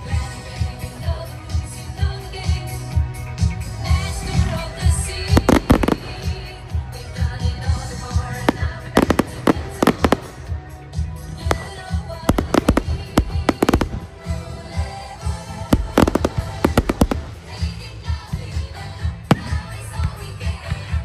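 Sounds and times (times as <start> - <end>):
music with steady beat: 3.6 - 6.7, 8.0 - 10.9, 11.5 - 20.2
fireworks banging: 4.3 - 6.5, 8.2 - 10.6, 11.5 - 18.1, 19.3 - 19.8.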